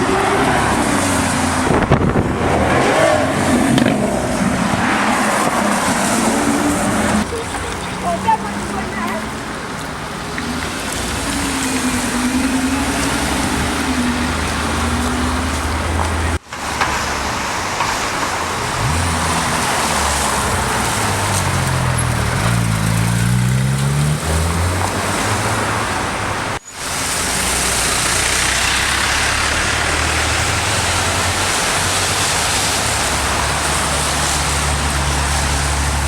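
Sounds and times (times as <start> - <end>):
car engines running: 0.0 - 36.0
road and wind noise: 0.0 - 36.0.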